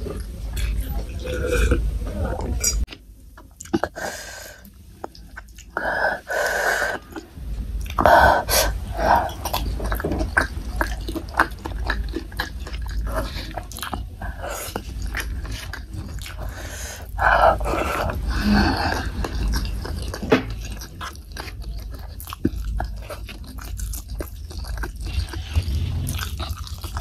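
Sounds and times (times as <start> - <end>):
wet chewing clicks: 2.8 - 27.0.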